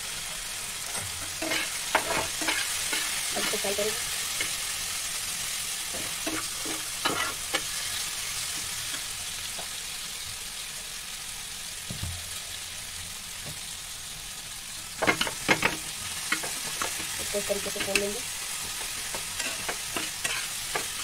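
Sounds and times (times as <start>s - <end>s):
food sizzling in oil: 0.0s - 21.0s
steel spatula scraping pan: 0.8s - 4.6s, 18.6s - 21.0s.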